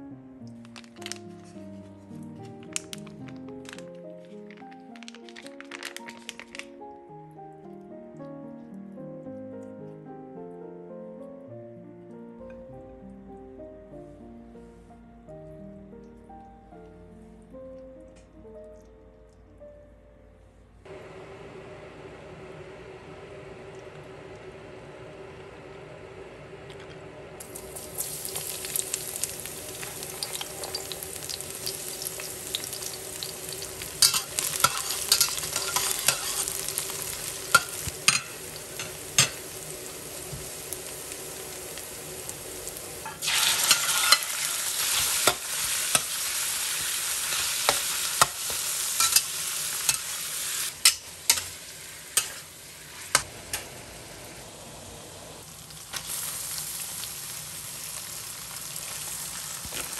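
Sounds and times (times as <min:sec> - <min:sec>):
food sizzling in a pan: 0:27.3 - 0:59.9
spatula scraping a pan: 0:34.0 - 0:36.7, 0:43.0 - 0:46.1, 0:50.8 - 0:53.3.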